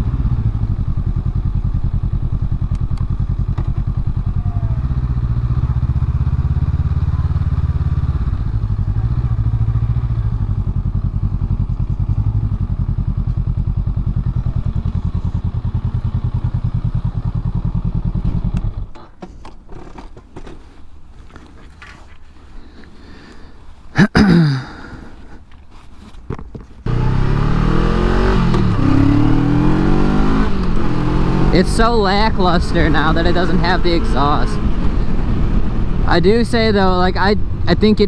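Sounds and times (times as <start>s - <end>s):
motorcycle engine pulsing exhaust: 0.0s - 19.2s, 26.8s - 38.0s.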